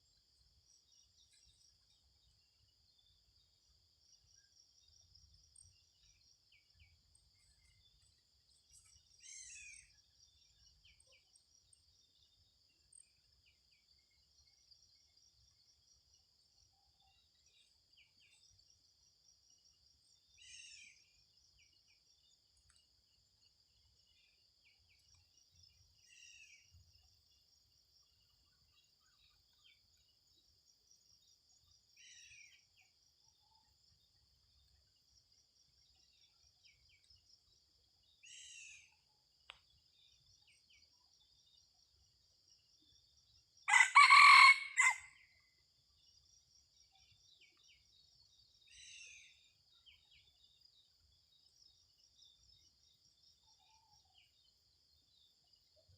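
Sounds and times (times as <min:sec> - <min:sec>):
rooster crowing: 0:43.7 - 0:45.1.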